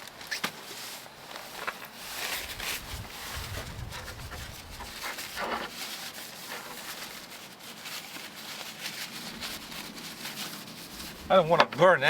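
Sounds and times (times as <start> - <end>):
rustle of handling: 0.0 - 12.0
wind buffeting microphone: 2.4 - 5.4.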